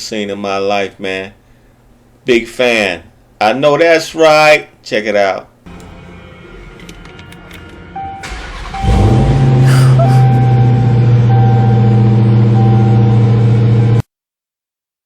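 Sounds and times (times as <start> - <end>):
car engine starting and idling: 5.7 - 14.0.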